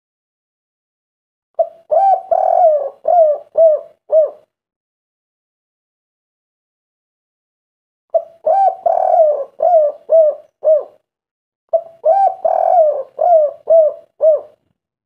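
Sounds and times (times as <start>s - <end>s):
dove cooing: 1.6s - 4.5s, 8.1s - 11.0s, 11.7s - 14.7s.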